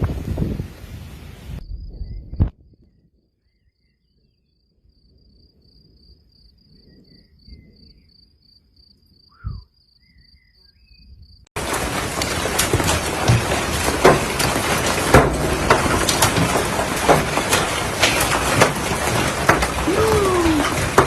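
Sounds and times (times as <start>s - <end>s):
cricket chirping: 1.6s - 11.5s.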